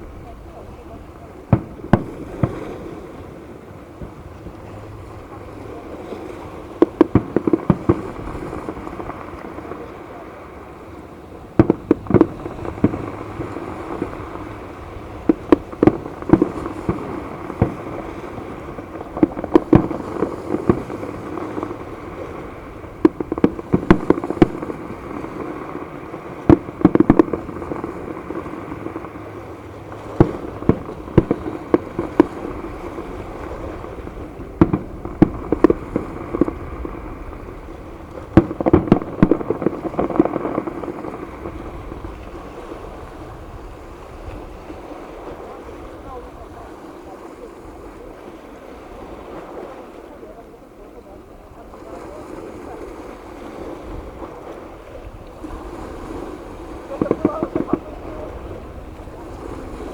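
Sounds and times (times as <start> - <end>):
fireworks bursting: 0.0 - 47.2, 51.5 - 59.9
steady background hiss: 0.0 - 59.9.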